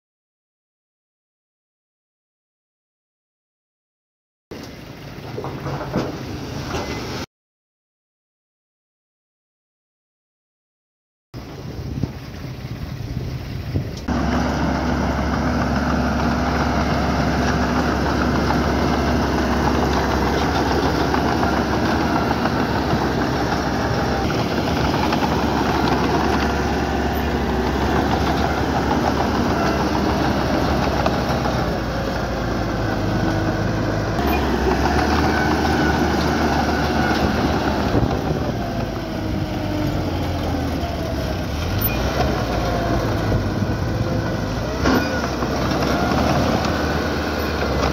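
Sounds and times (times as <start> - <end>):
diesel engine running: 11.4 - 47.9.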